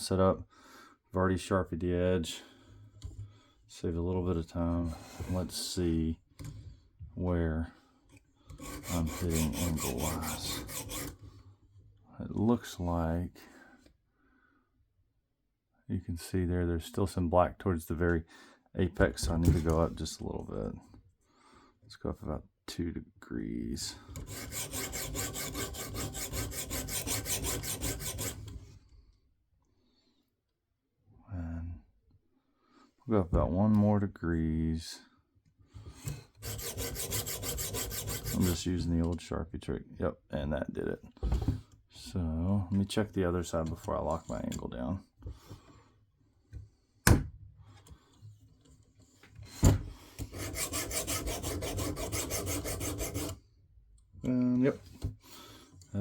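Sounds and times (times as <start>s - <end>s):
sharpening stone rasping on knife: 8.6s - 11.2s, 24.2s - 28.4s, 36.4s - 38.6s, 50.4s - 53.4s.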